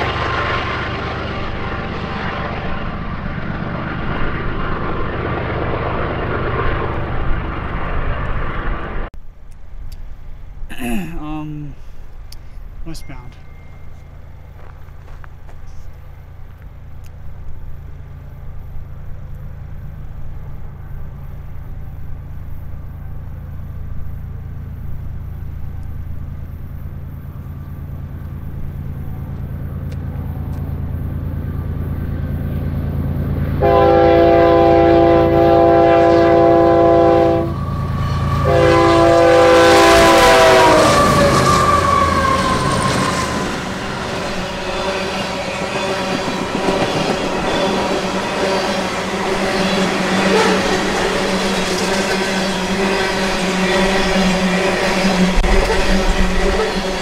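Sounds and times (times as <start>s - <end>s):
wheels rushing on rail: 0.0s - 10.6s, 11.8s - 57.0s
diesel locomotive rumbling: 0.0s - 57.0s
locomotive air horn blasts: 33.6s - 43.7s, 48.4s - 57.0s.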